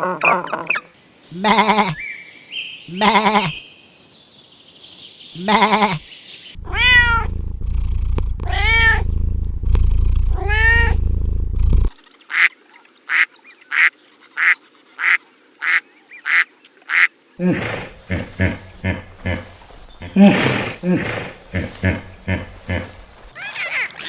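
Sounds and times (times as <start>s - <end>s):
animal giving short calls: 1.4s - 2.0s, 2.9s - 3.6s, 5.4s - 6.0s, 15.0s - 24.0s
cat meowing: 6.6s - 7.4s, 8.4s - 9.1s, 10.2s - 11.0s
low steady rumble: 6.6s - 12.0s, 17.6s - 23.3s.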